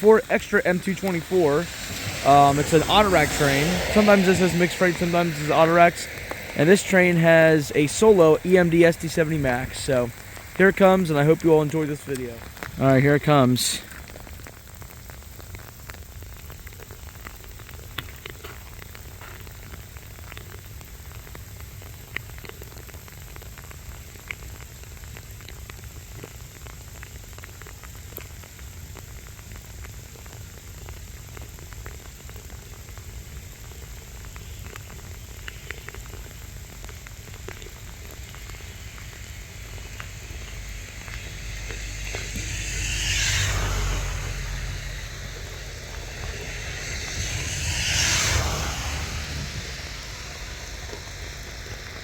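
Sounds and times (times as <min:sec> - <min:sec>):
rushing noise: 0:00.0 - 0:15.2, 0:34.2 - 0:52.0
sleet pellets ticking: 0:00.0 - 0:52.0.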